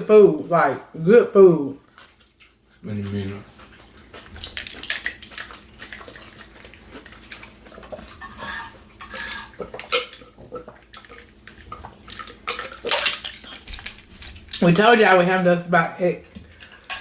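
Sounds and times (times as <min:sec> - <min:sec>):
wet chewing: 0:01.7 - 0:14.7.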